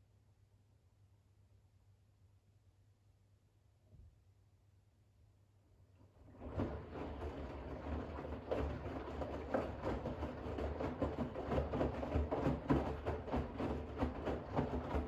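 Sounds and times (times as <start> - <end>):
washing machine motor hum: 6.2 - 15.0
water and towels sloshing in drum: 6.2 - 15.0.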